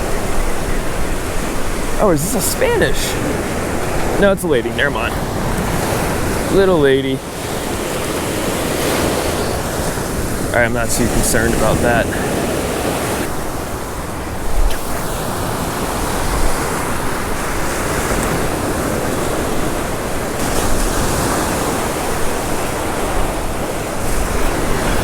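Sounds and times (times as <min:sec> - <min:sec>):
ocean surf washing on beach: 0:00.0 - 0:25.0
wind buffeting microphone: 0:00.0 - 0:25.0.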